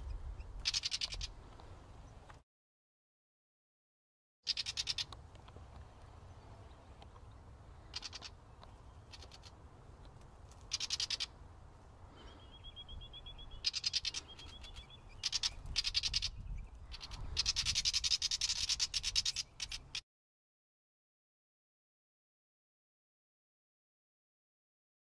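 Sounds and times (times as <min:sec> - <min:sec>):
birds chattering dry clicks: 0:00.0 - 0:01.3, 0:04.5 - 0:06.2, 0:06.8 - 0:11.4, 0:12.2 - 0:20.0
low wind rumble: 0:00.0 - 0:02.3, 0:11.2 - 0:19.9
faint high bird trill: 0:04.5 - 0:05.1, 0:06.4 - 0:09.6, 0:10.7 - 0:11.4, 0:12.1 - 0:20.0.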